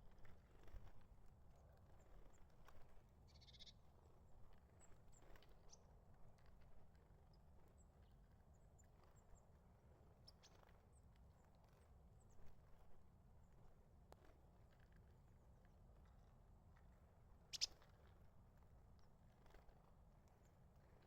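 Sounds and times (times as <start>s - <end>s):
small birds calling faintly: 17.4s - 18.2s.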